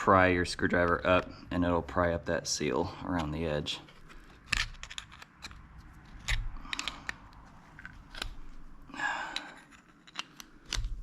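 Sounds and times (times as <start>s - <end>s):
screwdriver scraping metal: 9.3s - 10.9s
screwdriver prying metal clicks: 9.4s - 11.0s.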